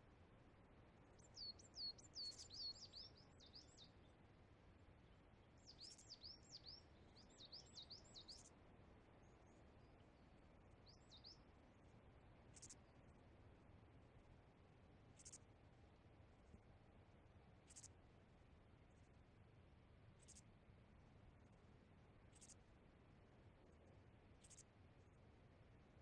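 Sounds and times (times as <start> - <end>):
faint bird chirps: 1.0 - 4.2, 5.0 - 8.5, 9.2 - 11.9, 12.5 - 13.2, 15.1 - 15.5, 17.6 - 18.0, 20.2 - 20.5, 22.3 - 22.7, 24.4 - 25.2.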